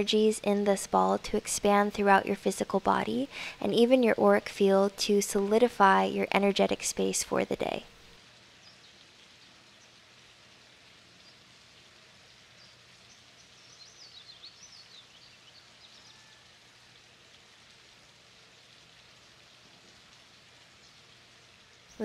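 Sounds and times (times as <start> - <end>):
soft outdoor hiss: 0.0 - 22.0
small bird chirping: 12.2 - 16.4.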